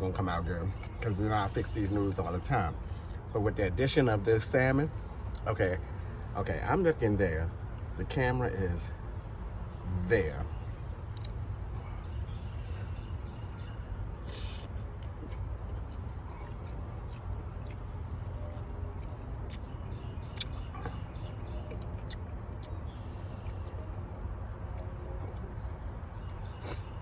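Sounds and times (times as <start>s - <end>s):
person chewing food: 11.0s - 26.9s
mouth clicks: 12.4s - 23.9s.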